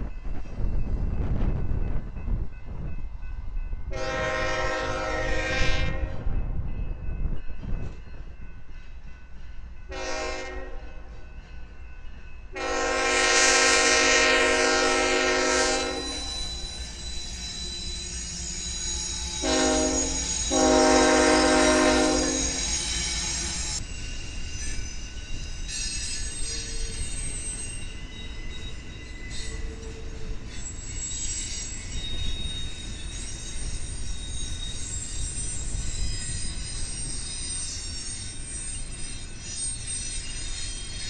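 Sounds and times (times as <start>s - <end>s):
moving train rumble: 0.0s - 41.0s
locomotive air horn blasts: 3.9s - 6.2s, 9.9s - 10.8s, 12.6s - 16.3s, 19.4s - 22.6s.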